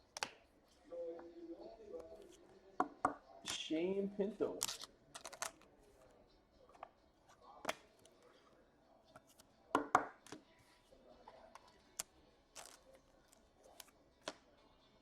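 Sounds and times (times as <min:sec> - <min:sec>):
cards and wrappers rustling: 0:04.6 - 0:05.7, 0:11.9 - 0:14.4.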